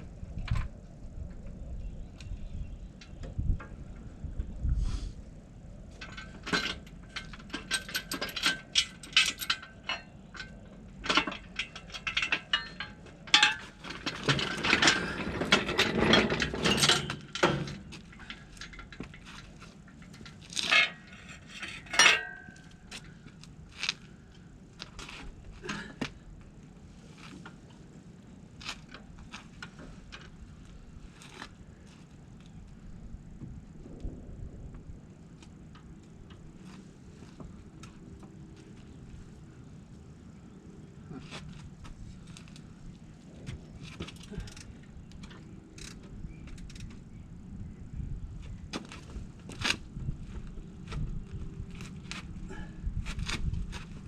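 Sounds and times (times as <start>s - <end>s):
metal clicking and ratcheting: 6.0s - 23.1s.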